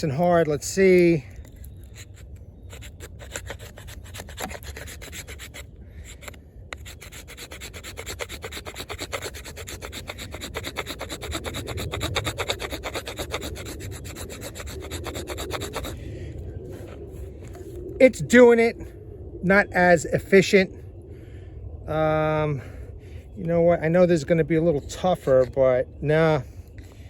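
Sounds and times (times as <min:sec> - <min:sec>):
knife scraping wood: 0:01.4 - 0:16.0.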